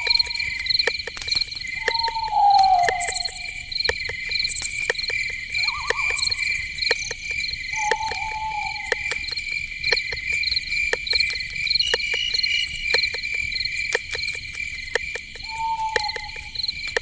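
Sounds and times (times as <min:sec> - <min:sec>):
crickets chirring: 0:00.0 - 0:17.0
sharp clicks: 0:00.0 - 0:17.0
falling animal call: 0:01.8 - 0:03.6, 0:07.8 - 0:09.2.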